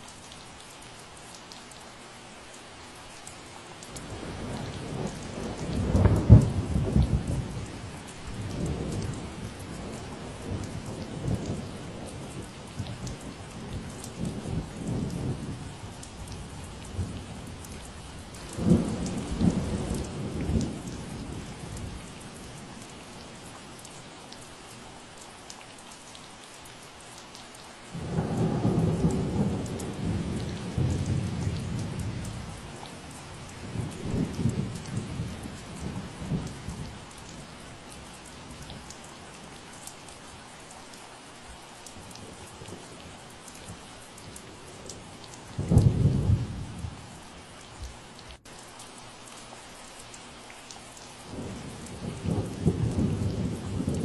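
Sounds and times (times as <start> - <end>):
steady rain falling: 0.0 - 54.0
thunder rumbling: 18.4 - 22.5, 28.0 - 37.3, 44.6 - 47.1, 51.3 - 54.0.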